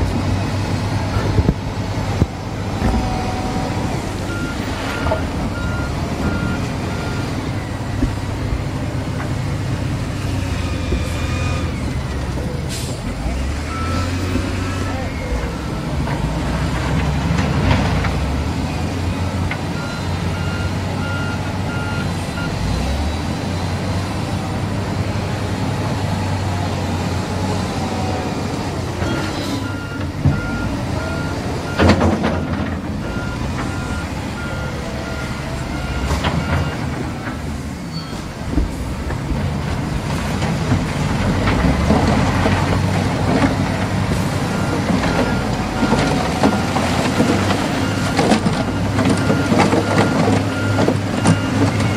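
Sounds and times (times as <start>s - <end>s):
heavy machinery engine running: 0.0s - 51.9s
reversing alarm beeping: 4.3s - 7.7s, 19.8s - 22.6s, 29.0s - 36.8s, 44.5s - 51.9s.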